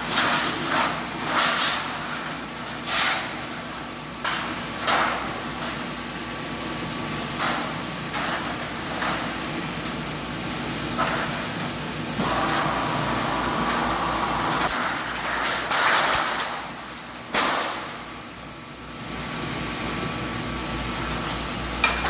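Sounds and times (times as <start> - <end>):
slitting machine humming: 7.1 - 18.8.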